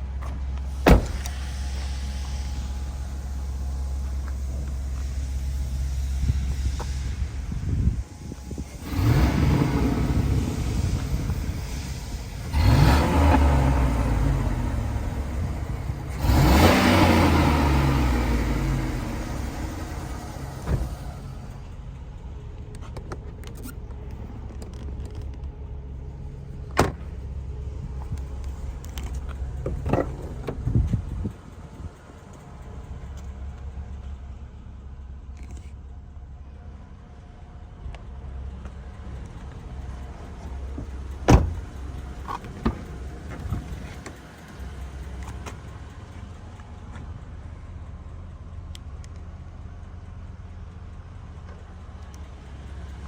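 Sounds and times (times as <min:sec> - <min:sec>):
car engine revving and idling: 0:00.0 - 0:53.0.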